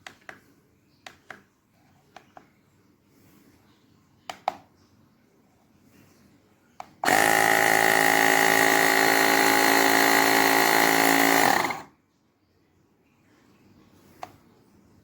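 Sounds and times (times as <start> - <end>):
electric tyre pump running: 7.0 - 11.9.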